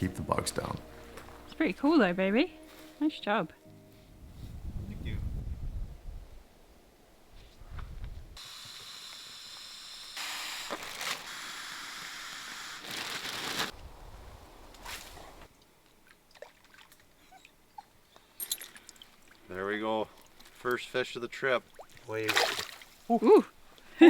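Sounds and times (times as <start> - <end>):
water sloshing and splashing: 16.0 - 17.2, 18.5 - 23.1.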